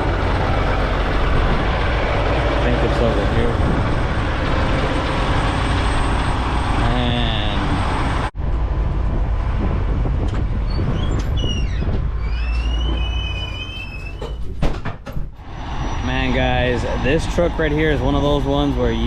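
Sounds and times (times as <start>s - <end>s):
diesel truck engines rumbling: 0.0s - 14.5s, 15.3s - 19.0s
thin high squeal: 10.7s - 14.5s
loud rushing noise: 15.4s - 19.0s.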